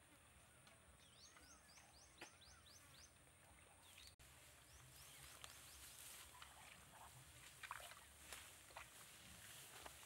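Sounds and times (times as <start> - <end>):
bird chirping: 0.4 - 6.8.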